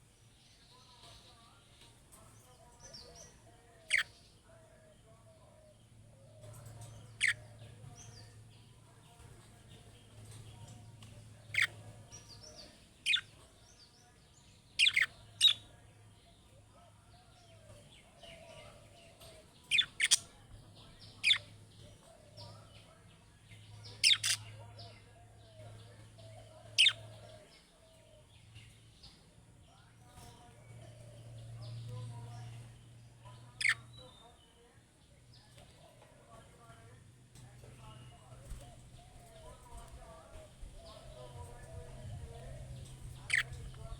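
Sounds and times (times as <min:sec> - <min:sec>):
soft bird chattering: 0:02.8 - 0:04.3, 0:06.3 - 0:09.2, 0:09.8 - 0:13.9, 0:14.7 - 0:15.8, 0:17.6 - 0:22.9, 0:23.5 - 0:27.7, 0:31.2 - 0:34.5, 0:37.7 - 0:43.9
budgerigars chirping: 0:03.9 - 0:04.2, 0:07.1 - 0:07.4, 0:11.5 - 0:12.4, 0:14.8 - 0:15.7, 0:18.2 - 0:20.3, 0:23.8 - 0:24.6, 0:26.7 - 0:27.2, 0:33.6 - 0:33.9, 0:40.8 - 0:43.9.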